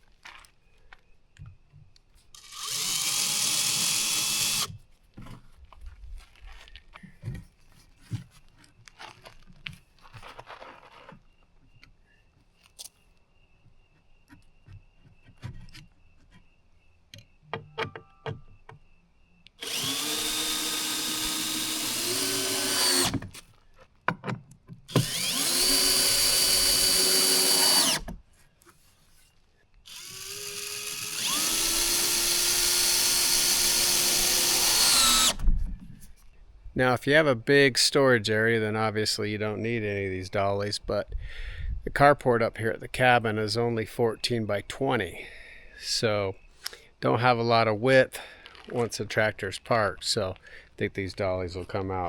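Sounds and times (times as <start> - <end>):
power drill driving screws: 2.3 - 4.8, 19.6 - 23.4, 24.9 - 28.1, 29.9 - 35.5
knocks and clicks of handling wood: 17.1 - 18.9, 23.1 - 25.0.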